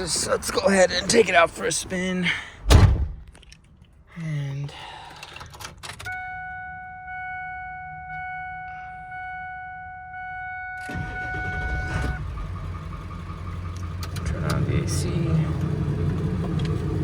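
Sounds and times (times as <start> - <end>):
engine low rumble: 0.0 - 17.0
dashboard warning chime: 6.1 - 12.4
diesel engine cranking and starting: 10.8 - 17.0.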